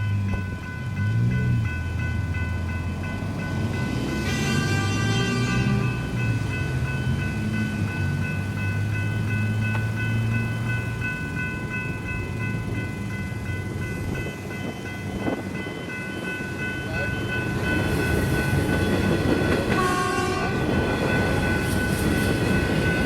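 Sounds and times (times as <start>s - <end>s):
crossing bells ringing: 0.0s - 23.0s
train rumbling: 0.0s - 23.0s.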